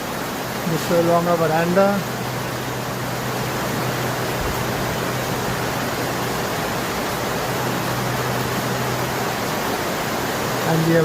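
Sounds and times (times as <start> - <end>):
heavy rain hiss: 0.0 - 11.0
low steady hum: 0.0 - 11.0.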